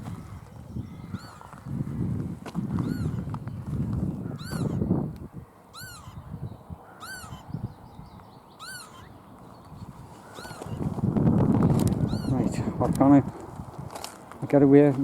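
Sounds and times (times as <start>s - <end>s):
bird alarm call: 0.2s - 1.6s, 2.7s - 3.6s, 4.2s - 4.9s, 5.7s - 10.9s, 12.0s - 12.6s
low rustle of movement: 9.4s - 14.4s.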